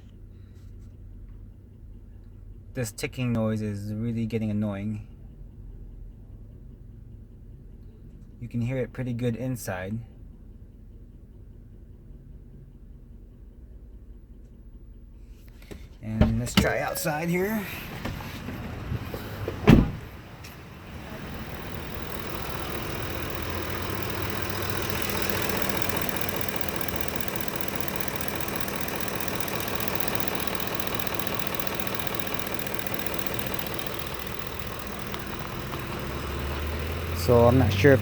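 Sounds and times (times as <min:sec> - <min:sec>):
truck engine idling: 0:10.2 - 0:38.0
sharp thump: 0:19.5 - 0:20.1
fast regular ticking: 0:20.2 - 0:38.0.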